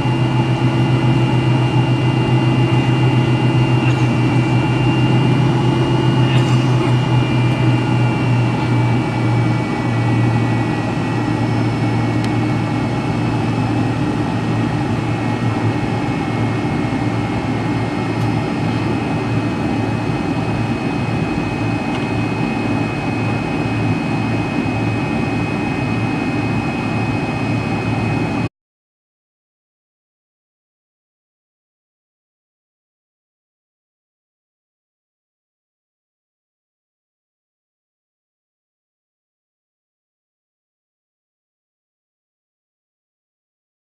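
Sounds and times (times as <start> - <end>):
jet engine drone in cabin: 0.0 - 28.5.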